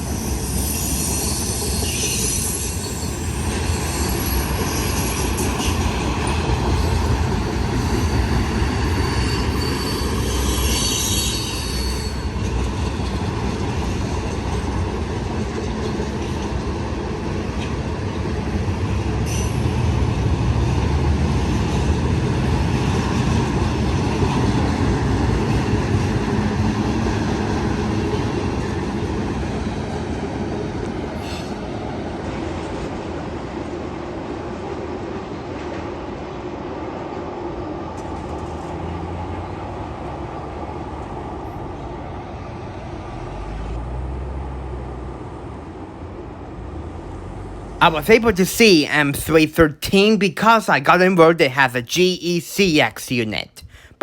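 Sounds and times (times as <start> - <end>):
train cars rumbling on rails: 0.0 - 47.8
wheel squeal: 0.1 - 6.0, 6.7 - 12.4.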